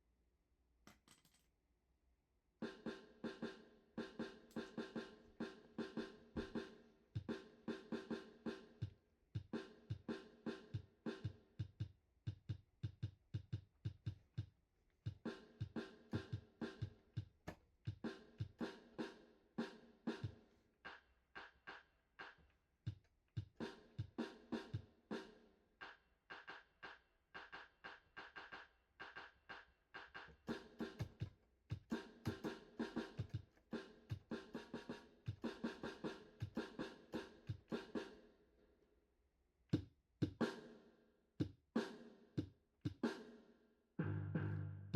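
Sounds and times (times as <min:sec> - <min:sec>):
instrumental music with drum beat: 0:02.6 - 0:38.4, 0:39.7 - 0:44.9
drum beat with deep kick: 0:05.8 - 0:08.2, 0:09.4 - 0:14.5, 0:15.1 - 0:18.8, 0:30.0 - 0:38.0, 0:39.8 - 0:40.6.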